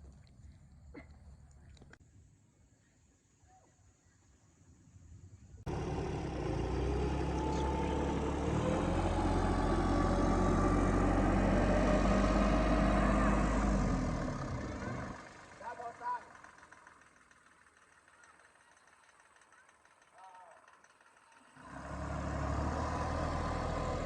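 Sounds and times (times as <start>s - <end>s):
car engine idling: 5.7s - 24.0s.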